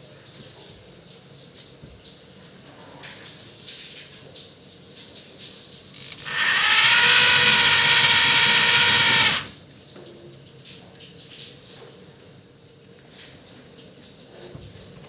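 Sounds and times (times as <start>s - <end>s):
rotary hammer motor whine: 6.0s - 9.6s.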